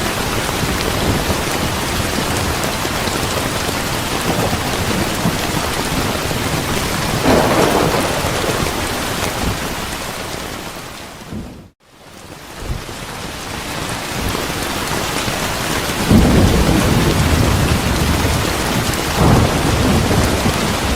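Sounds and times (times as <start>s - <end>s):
heavy rain: 0.0s - 20.9s
thunder rumble: 0.5s - 11.7s, 16.0s - 20.9s.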